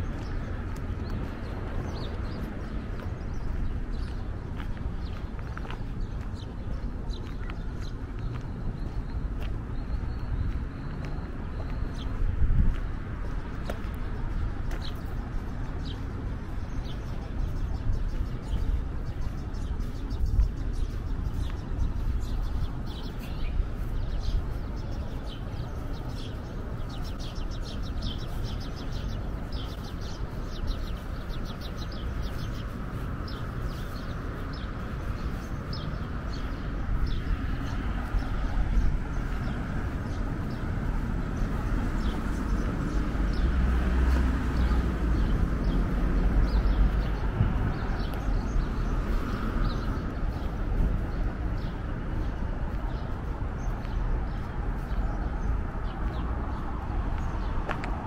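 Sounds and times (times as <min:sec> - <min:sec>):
city traffic rumble: 0:00.0 - 0:58.0
small birds chirping: 0:00.0 - 0:58.0.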